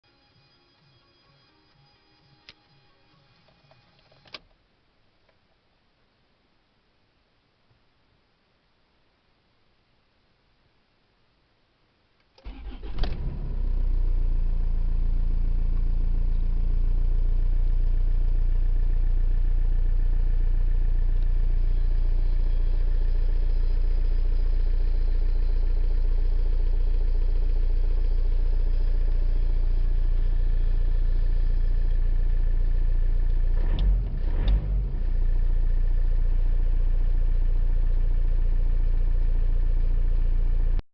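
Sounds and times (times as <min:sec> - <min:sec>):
diesel engine starting and idling: 0:12.4 - 0:40.7.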